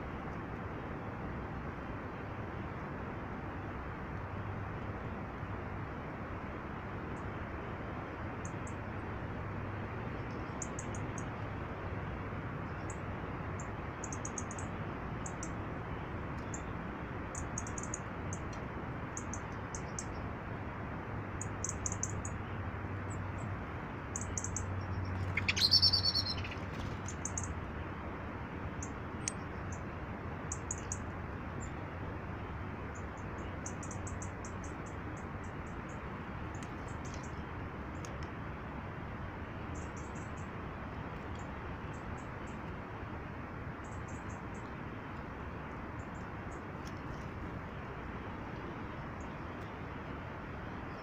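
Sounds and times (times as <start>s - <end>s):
small birds calling: 24.2s - 27.6s, 30.5s - 31.0s.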